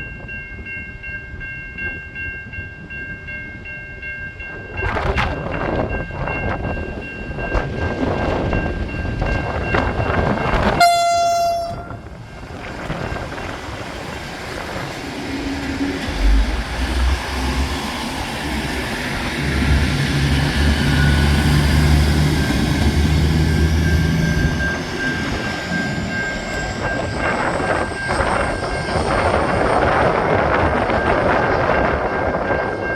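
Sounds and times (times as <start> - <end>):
train horn blast: 10.7 - 12.0
diesel engines and wheels rumbling: 12.4 - 31.3.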